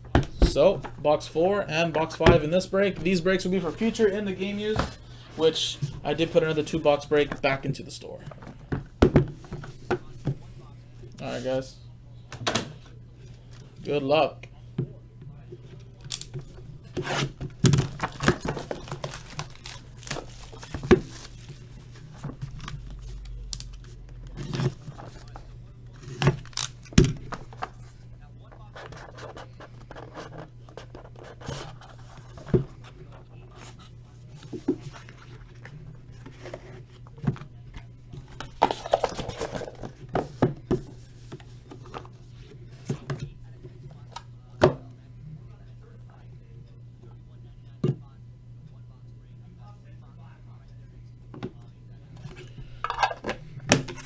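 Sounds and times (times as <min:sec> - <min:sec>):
steady low hum: 0:00.0 - 0:54.0
plastic wrap tearing and crinkling: 0:17.0 - 0:21.7, 0:26.0 - 0:27.0.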